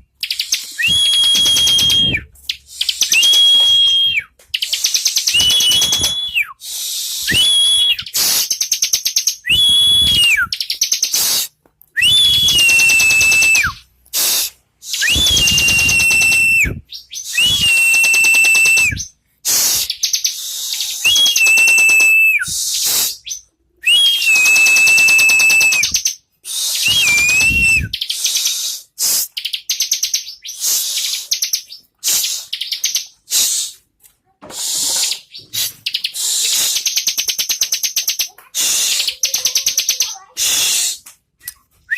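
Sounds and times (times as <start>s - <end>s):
bird whistling with buzzing trill: 5.2s - 6.5s, 12.0s - 13.8s, 14.9s - 19.1s, 23.9s - 26.0s, 26.7s - 28.0s
bird chatter: 12.3s - 23.4s, 34.6s - 41.0s.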